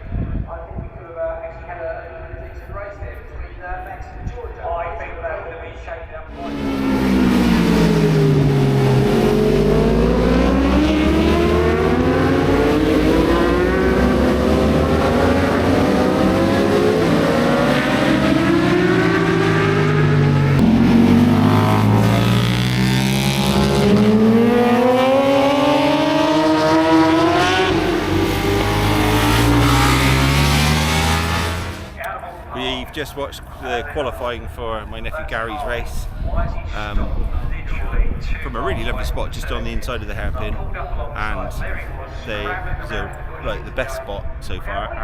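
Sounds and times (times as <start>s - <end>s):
racing motorcycle engines: 6.3s - 35.3s.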